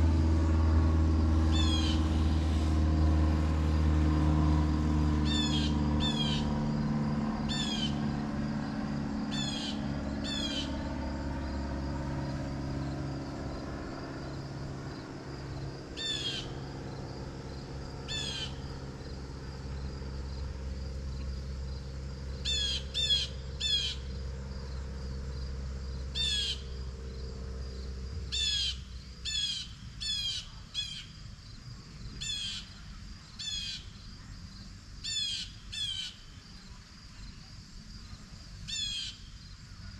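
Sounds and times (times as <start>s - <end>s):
bird calling: 1.5s - 2.4s, 5.2s - 6.5s, 7.5s - 8.1s, 9.2s - 10.8s, 15.9s - 16.6s, 18.0s - 18.6s, 22.4s - 24.1s, 26.2s - 26.8s, 28.3s - 31.1s, 38.7s - 39.3s.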